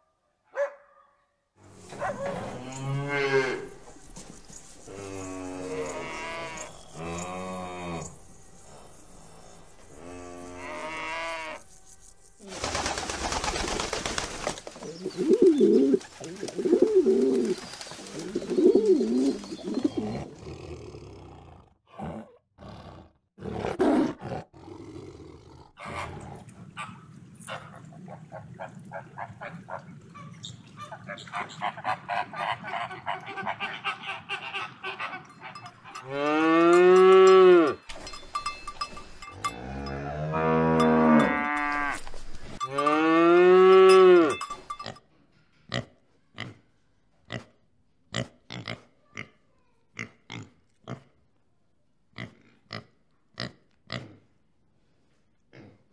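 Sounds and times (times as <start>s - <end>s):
cows mooing: 2.2s - 3.8s, 4.9s - 8.2s, 35.2s - 37.9s, 39.3s - 44.5s
cowbells clanking: 34.9s - 45.2s.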